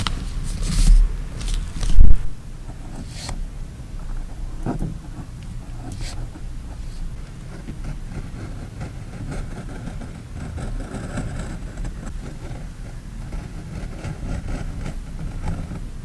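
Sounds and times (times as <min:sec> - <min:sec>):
paper and stickers handled: 0:00.0 - 0:02.4.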